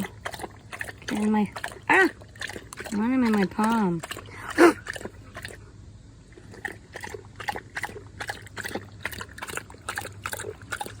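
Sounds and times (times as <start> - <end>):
splashing in shallow pool water: 0.0 - 5.7, 6.3 - 11.0.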